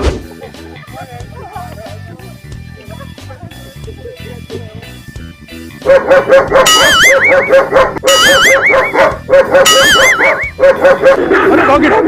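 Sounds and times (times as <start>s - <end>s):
dog barking: 5.8s - 12.0s
high warbling electronic tone: 6.7s - 9.0s, 9.6s - 10.5s.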